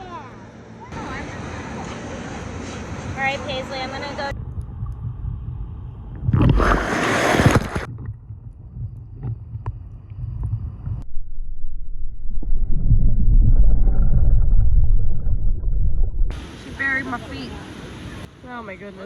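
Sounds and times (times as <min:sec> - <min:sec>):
wind buffeting microphone: 0:04.2 - 0:11.1.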